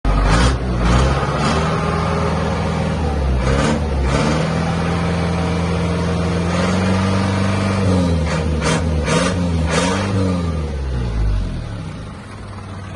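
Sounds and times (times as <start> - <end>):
diesel engine revving: 0.0 - 12.9.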